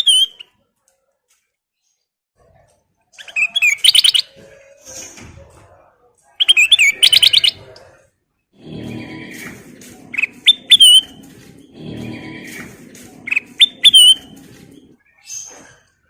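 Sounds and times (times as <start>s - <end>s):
bulbul whistling song: 3.2s - 4.4s, 6.4s - 7.6s, 10.1s - 15.6s.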